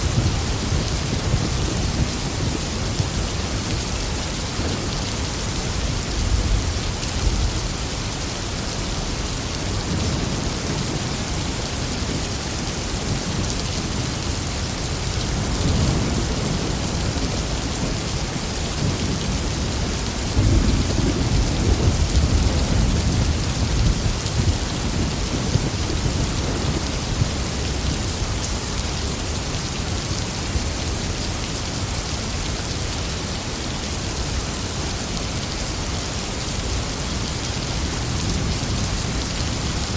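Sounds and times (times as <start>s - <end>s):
heavy rain: 0.0s - 39.9s
rolling thunder: 15.3s - 28.4s.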